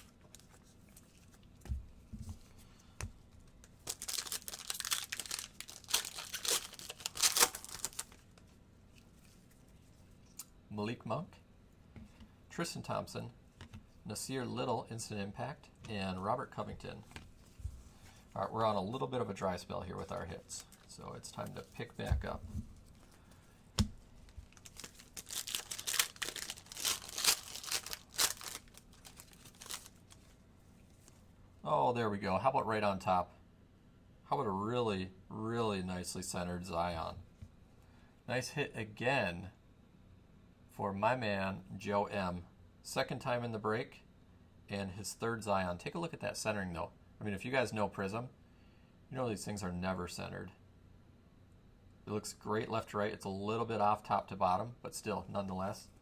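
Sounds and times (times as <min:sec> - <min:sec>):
wrapper tearing and crinkling: 0:03.8 - 0:08.2, 0:24.2 - 0:30.3.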